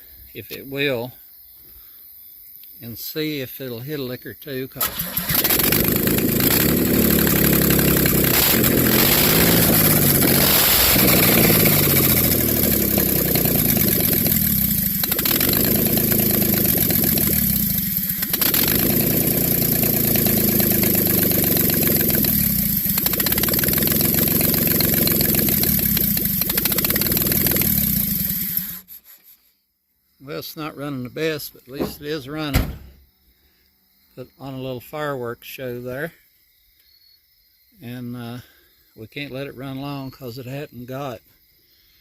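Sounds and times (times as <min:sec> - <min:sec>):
car engine revving roughly: 0:04.9 - 0:28.8.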